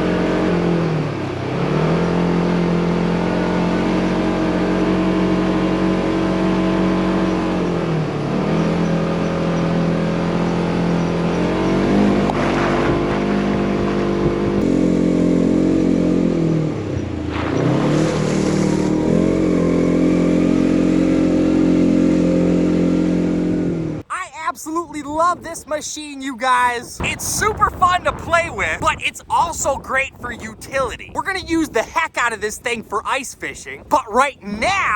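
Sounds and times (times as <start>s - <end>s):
utility vehicle engine running: 0.0s - 24.0s.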